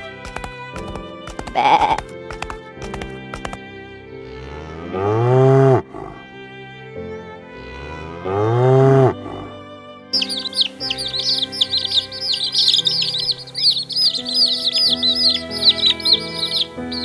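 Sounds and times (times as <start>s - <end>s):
small birds chirping: 0.0s - 3.6s, 10.2s - 17.0s
soft background music: 0.0s - 17.0s
cow mooing: 4.3s - 6.2s, 7.6s - 9.6s.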